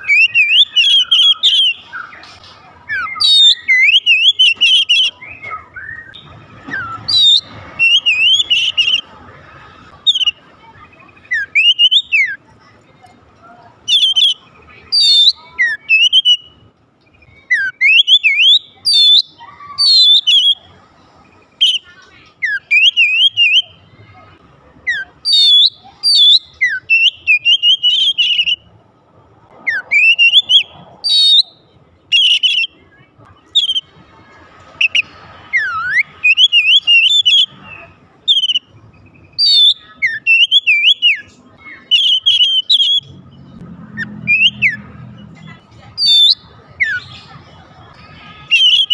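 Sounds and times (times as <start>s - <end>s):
bird singing whistled phrases: 0.0s - 2.2s, 2.9s - 9.1s, 10.0s - 12.4s, 13.8s - 20.7s, 21.6s - 23.8s, 24.9s - 28.7s, 29.7s - 33.9s, 34.8s - 43.1s, 44.0s - 44.9s, 46.0s - 47.4s, 48.4s - 48.9s.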